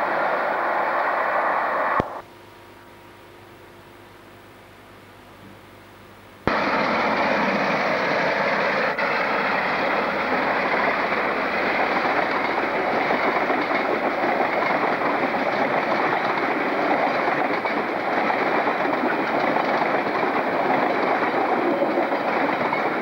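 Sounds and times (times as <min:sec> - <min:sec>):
diesel locomotive engine running: 0:06.5 - 0:23.0
wagons rolling over rails: 0:06.5 - 0:23.0.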